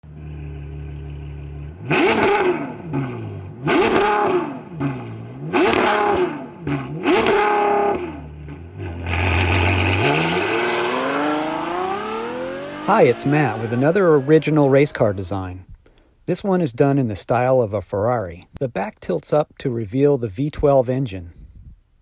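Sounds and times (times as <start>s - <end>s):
car engine idling and revving: 0.0s - 15.8s.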